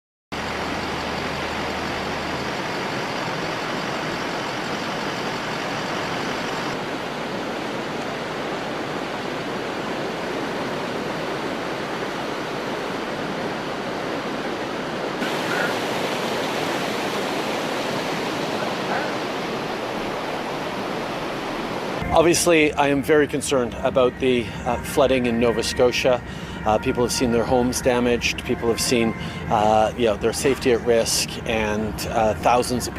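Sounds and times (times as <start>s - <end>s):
floodwater rushing: 0.4s - 25.3s.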